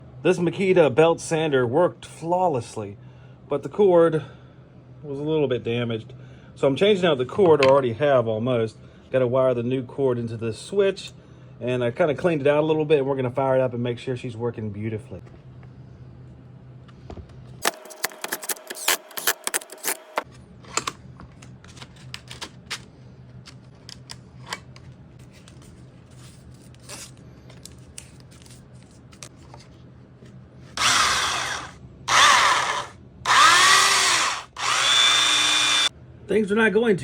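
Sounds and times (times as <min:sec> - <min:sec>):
belt sander motor bursts: 0:30.8 - 0:35.9.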